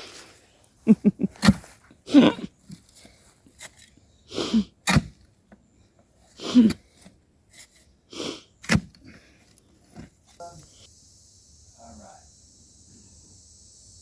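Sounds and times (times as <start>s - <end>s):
digging tool striking ground: 1.4s - 1.8s, 2.6s - 4.0s, 4.7s - 5.3s, 8.6s - 9.2s.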